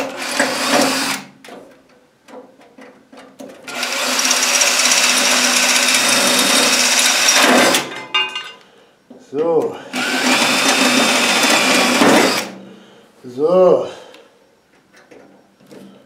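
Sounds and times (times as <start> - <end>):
power tool motor running: 3.7 - 7.8, 9.9 - 12.6.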